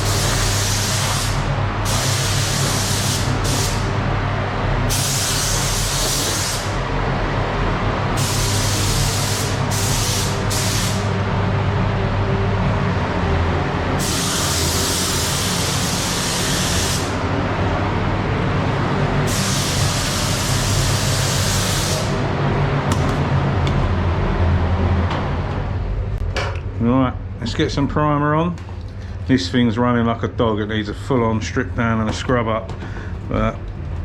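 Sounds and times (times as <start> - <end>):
spray hissing: 0.0 - 3.9, 14.0 - 17.2, 19.3 - 22.1
steady low hum: 0.0 - 34.0.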